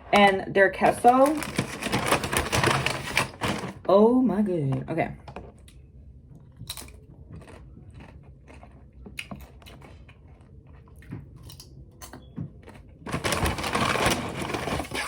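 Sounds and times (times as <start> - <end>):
person chewing crunchy chips: 6.5 - 15.0.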